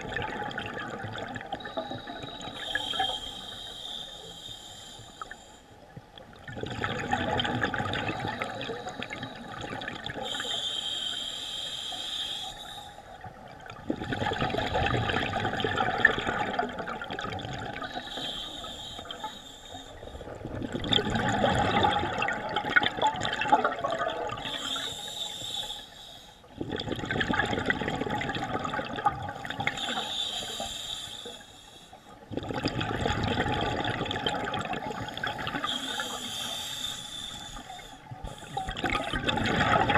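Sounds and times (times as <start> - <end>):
gurgling exhaled bubbles: 0.0 - 2.5, 6.4 - 10.4, 13.5 - 18.0, 20.2 - 24.8, 26.6 - 30.0, 32.3 - 36.2, 38.2 - 39.9
hissing regulator inhalations: 1.6 - 5.8, 10.2 - 13.2, 17.8 - 20.2, 24.4 - 26.5, 29.6 - 32.2, 34.9 - 38.9.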